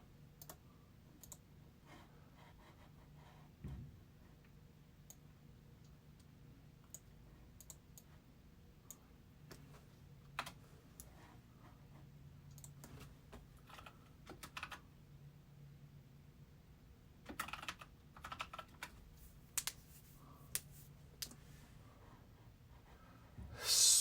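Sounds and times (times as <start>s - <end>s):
keyboard typing: 13.6s - 14.8s, 17.2s - 20.0s.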